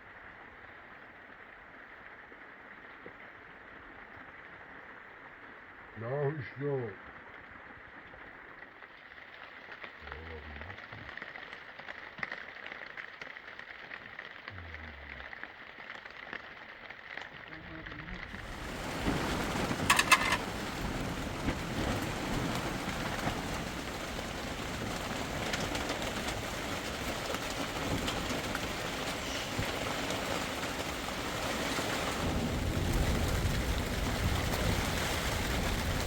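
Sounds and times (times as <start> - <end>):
heavy rain falling: 8.4 - 36.0.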